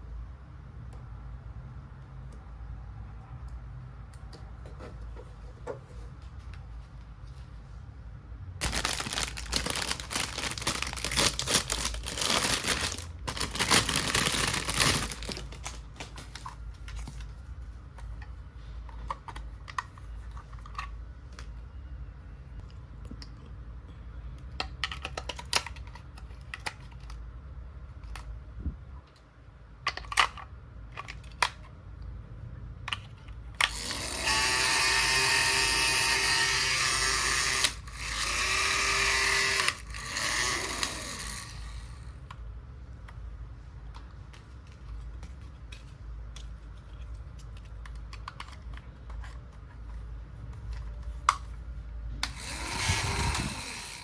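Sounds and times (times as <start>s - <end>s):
plastic toy pieces clicking: 24.6s - 27.2s
small toy motor whirring: 33.6s - 42.2s, 52.2s - 54.0s.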